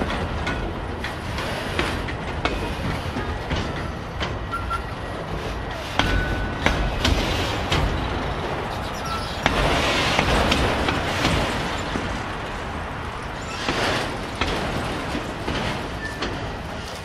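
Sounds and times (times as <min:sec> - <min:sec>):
freight cars rumbling: 0:00.0 - 0:17.0
wheels clicking over rail joints: 0:00.0 - 0:17.0
high wheel squeals: 0:07.9 - 0:10.1.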